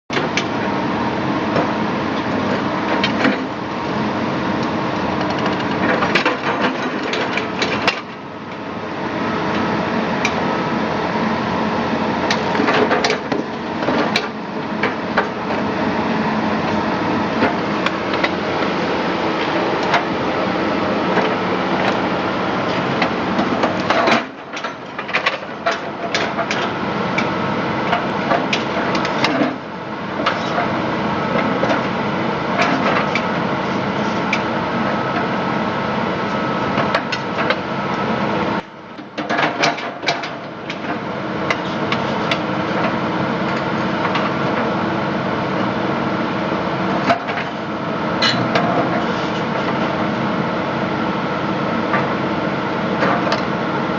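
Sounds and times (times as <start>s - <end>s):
machine running steadily: 0.1s - 53.9s.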